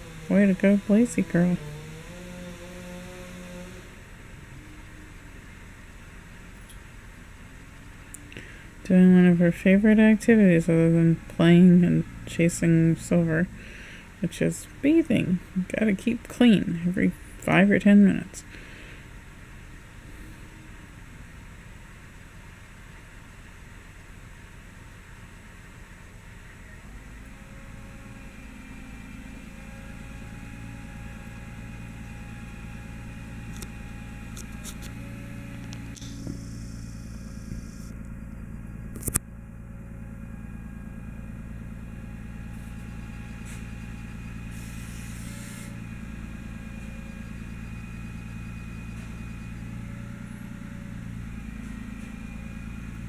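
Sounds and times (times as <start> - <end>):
truck engine running: 0.0 - 53.0
hissing bursts: 44.5 - 45.8.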